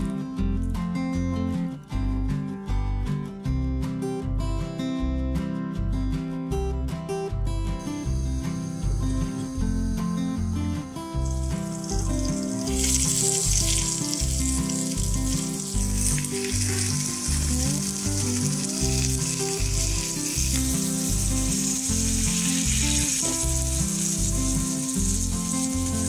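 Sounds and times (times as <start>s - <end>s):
background music with bass line: 0.0s - 26.0s
food sizzling in hot oil: 8.6s - 26.0s.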